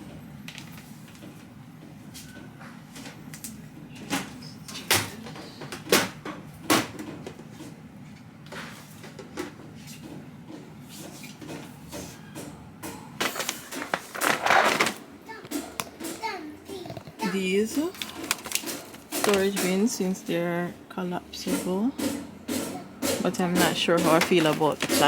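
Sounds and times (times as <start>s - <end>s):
low background hum: 0.0s - 25.0s
plastic bins knocking: 13.2s - 20.0s, 21.4s - 25.0s
plastic bins clattering: 13.2s - 20.1s, 21.4s - 25.0s.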